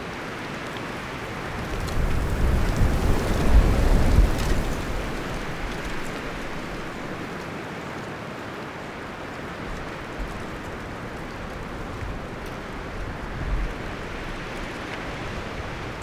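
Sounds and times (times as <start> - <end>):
wind rustling forest leaves: 0.0 - 16.0.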